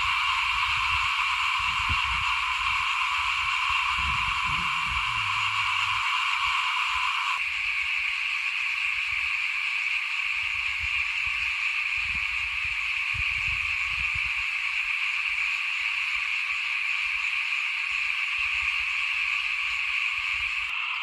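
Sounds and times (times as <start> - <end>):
chorus of frogs trilling: 0.0 - 12.8.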